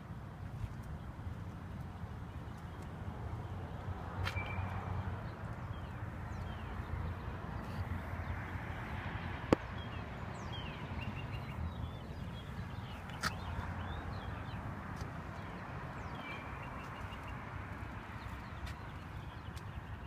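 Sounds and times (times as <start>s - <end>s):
small birds chirping: 4.2s - 20.0s.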